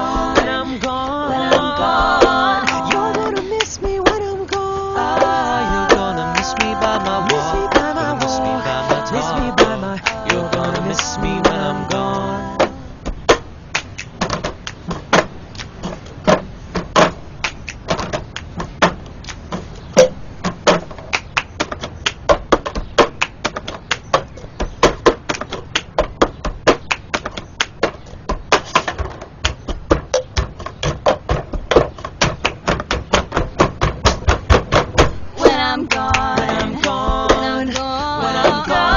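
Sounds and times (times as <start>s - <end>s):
hand claps: 0.4s - 11.6s, 13.7s - 14.8s, 17.4s - 18.6s, 21.1s - 24.2s, 25.1s - 26.1s, 26.7s - 28.0s, 28.6s - 29.7s, 32.2s - 33.2s, 35.9s - 38.9s.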